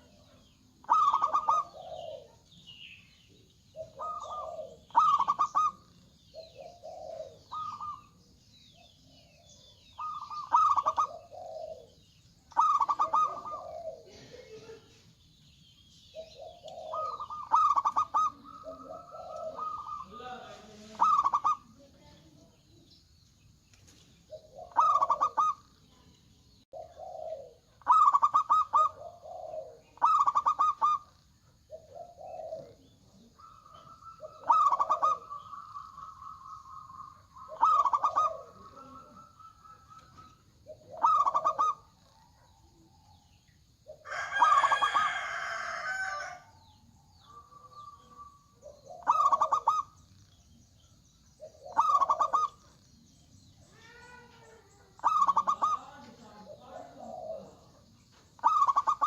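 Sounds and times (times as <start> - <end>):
doves cooing and trilling: 0.0 - 59.0
rooster crowing: 44.0 - 46.7.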